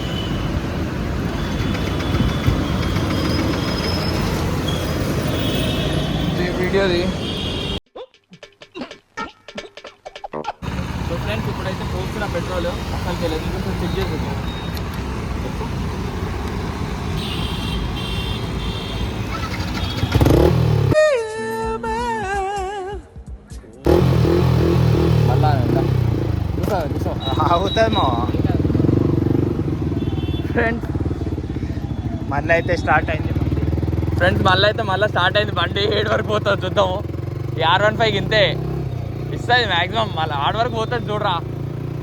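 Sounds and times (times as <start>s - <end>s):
wind and road noise: 0.0s - 7.8s, 10.6s - 21.0s, 23.9s - 34.8s
motorcycle engine running: 10.6s - 12.2s, 19.2s - 21.0s, 23.9s - 42.0s.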